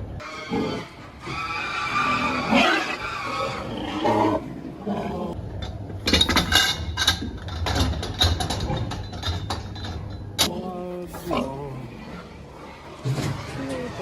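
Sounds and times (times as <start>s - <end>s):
metallic clanking and clattering: 5.6s - 10.5s.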